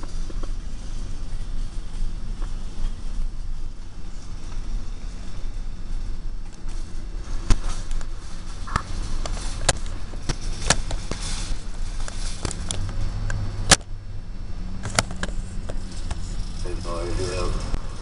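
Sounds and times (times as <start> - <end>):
freight train rumbling past: 0.0 - 18.0
train cars clanking: 14.8 - 18.0.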